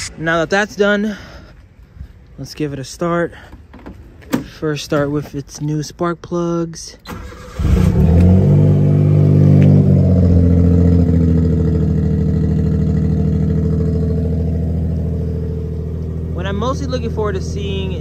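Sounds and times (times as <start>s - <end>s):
car engine starting and idling: 7.0s - 18.0s.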